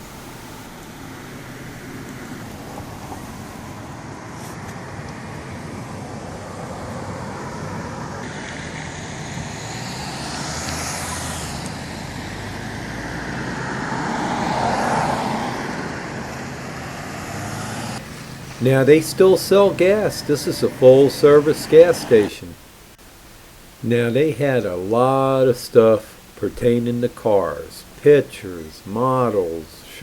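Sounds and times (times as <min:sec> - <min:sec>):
cars passing: 0:00.0 - 0:23.0
steady traffic hum: 0:00.0 - 0:30.0.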